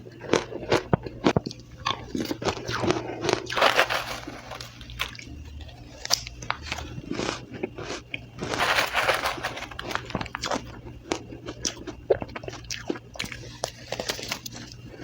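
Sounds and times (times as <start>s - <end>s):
crushed ice crunching: 3.5s - 5.3s, 8.5s - 10.6s.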